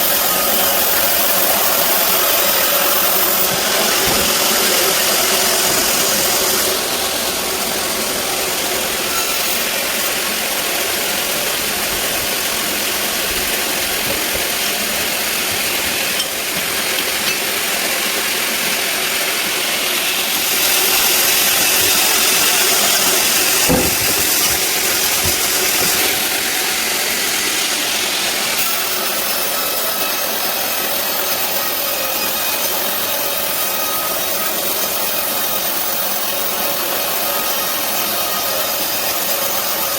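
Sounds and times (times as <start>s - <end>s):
bandsaw cutting log: 0.0s - 39.9s
brief knock: 23.7s - 26.2s.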